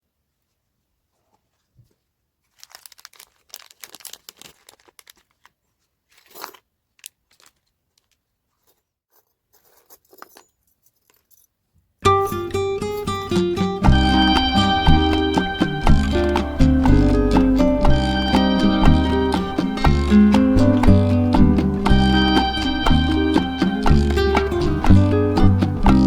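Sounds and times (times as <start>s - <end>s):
packaging being torn and crinkled: 2.5s - 8.2s
music: 12.0s - 26.0s.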